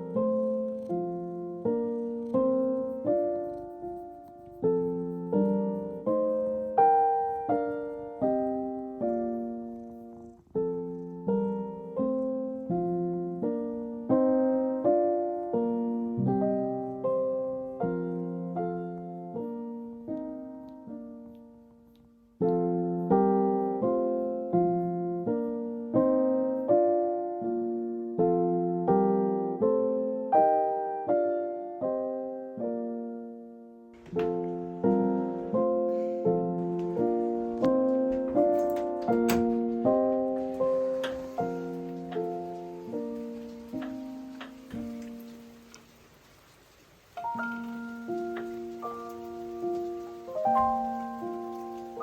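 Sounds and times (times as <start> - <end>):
slow piano melody: 0.0 - 52.0.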